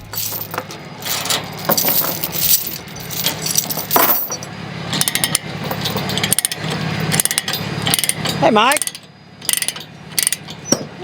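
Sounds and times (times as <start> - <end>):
metal hardware clinking and rattling: 0.0 - 10.9
steady low hum: 0.0 - 11.0.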